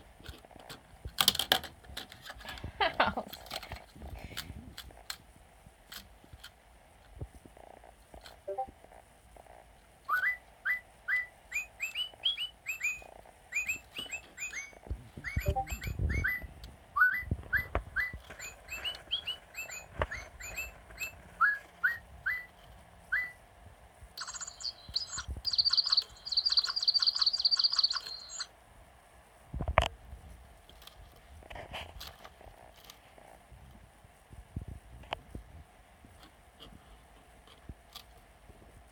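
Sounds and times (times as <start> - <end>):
robotic toy bird chirping: 10.1 - 22.5, 23.1 - 23.4, 24.2 - 28.5.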